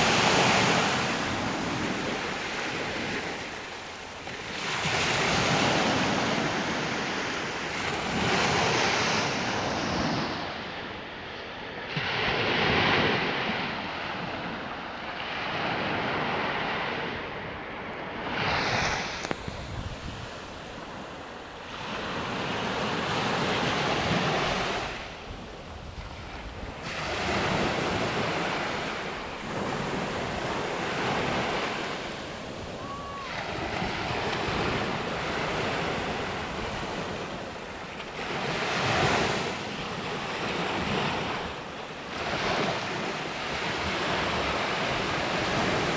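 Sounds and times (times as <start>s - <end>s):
sea waves breaking: 0.0s - 45.9s
wind on microphone: 0.0s - 45.9s.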